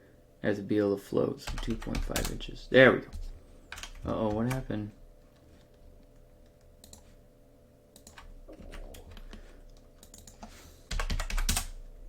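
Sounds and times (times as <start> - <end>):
computer keyboard typing clicks: 6.4 - 7.1, 8.0 - 11.8.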